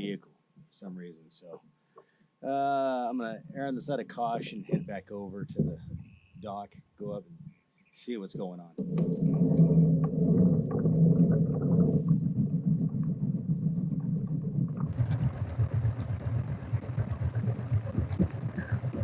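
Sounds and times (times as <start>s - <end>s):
steady low hum: 0.0s - 19.0s
wind noise on microphone: 4.7s - 6.2s, 14.8s - 19.0s
water churning rumble: 8.8s - 19.0s.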